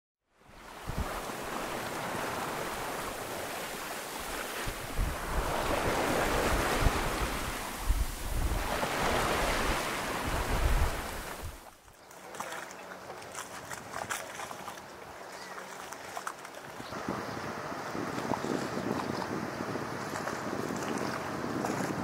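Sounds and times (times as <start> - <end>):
wind buffeting microphone: 0.8 - 3.4, 4.2 - 11.6, 16.9 - 22.0
water splashing along boat hull: 0.8 - 22.0.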